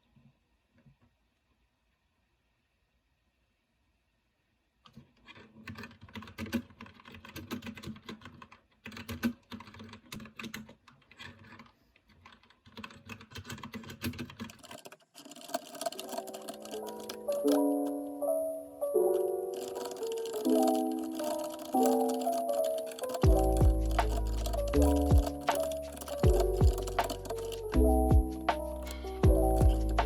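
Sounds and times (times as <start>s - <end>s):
music: 16.0s - 30.0s
keyboard key clicks: 19.6s - 27.8s.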